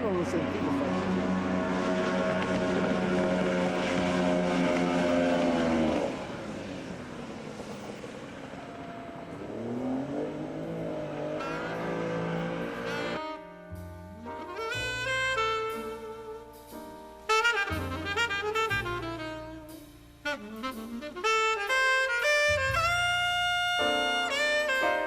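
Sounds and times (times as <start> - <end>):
music: 0.0 - 3.5, 12.9 - 25.0
outboard engine drumming: 0.0 - 25.0.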